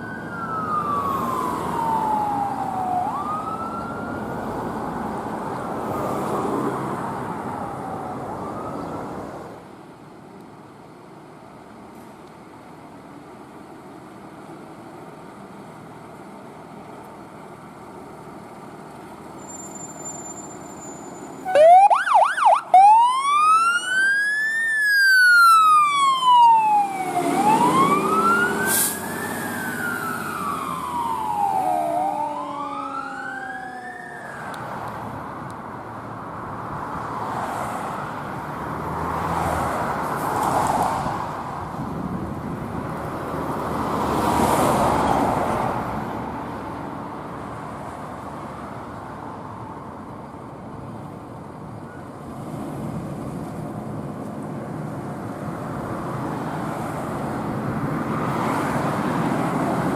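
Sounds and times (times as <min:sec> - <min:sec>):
emergency vehicle siren wailing: 0:00.0 - 0:09.6, 0:21.4 - 0:35.2
road traffic: 0:00.0 - 0:59.9
vehicles passing: 0:00.0 - 0:59.9.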